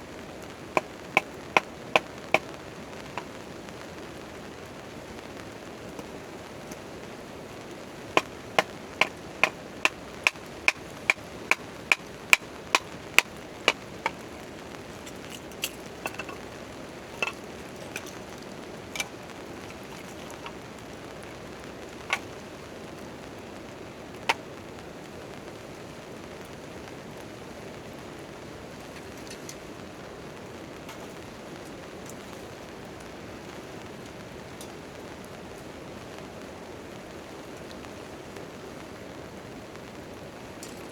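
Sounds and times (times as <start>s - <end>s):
steady rain: 0.0s - 40.9s
sharp knocks: 8.2s - 14.2s, 15.0s - 16.4s.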